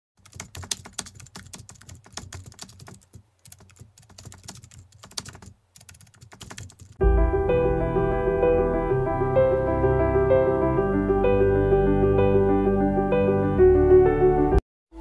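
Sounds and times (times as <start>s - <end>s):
typing on computer keyboard: 0.2s - 7.0s
music with keyboard chords: 7.0s - 14.6s.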